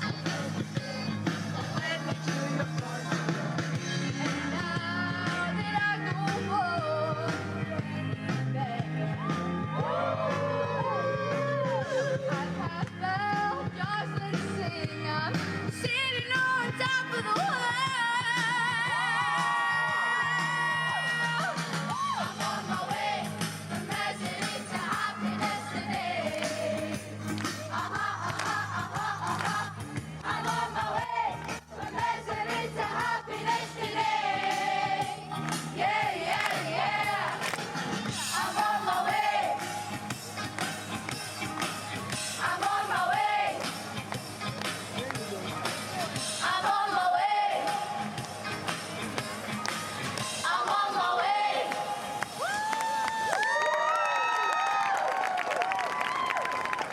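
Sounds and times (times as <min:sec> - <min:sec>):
voices singing with vibrato: 0:00.0 - 0:44.1, 0:45.6 - 0:53.2.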